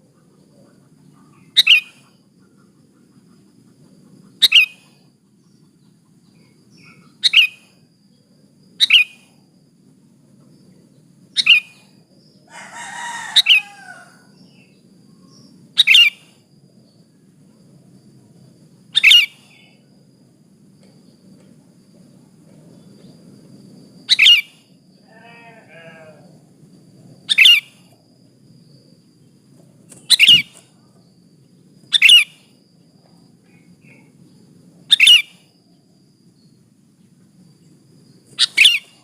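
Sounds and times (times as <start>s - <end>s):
bird giving sharp calls: 1.4s - 2.2s, 19.0s - 19.5s, 24.1s - 24.6s, 27.3s - 27.8s, 30.0s - 30.6s, 31.9s - 32.4s, 34.9s - 35.4s, 38.4s - 39.0s.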